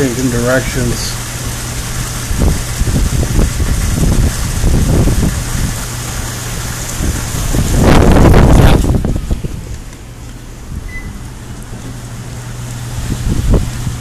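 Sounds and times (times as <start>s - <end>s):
heavy rain hiss: 0.0s - 14.0s
wind buffeting microphone: 2.0s - 5.9s, 6.9s - 9.9s, 12.9s - 14.0s.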